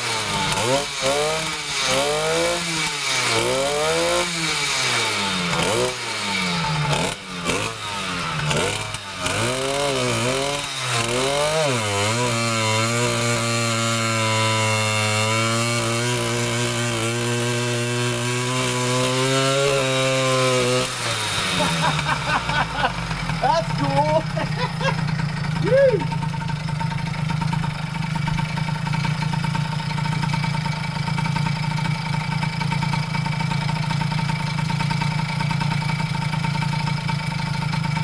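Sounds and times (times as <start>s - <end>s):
motorized bicycle engine revving: 0.0s - 38.0s.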